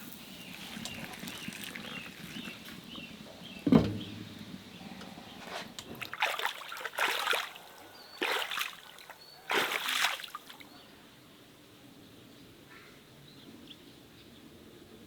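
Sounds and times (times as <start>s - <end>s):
water splashing: 0.0s - 3.0s, 5.9s - 10.6s.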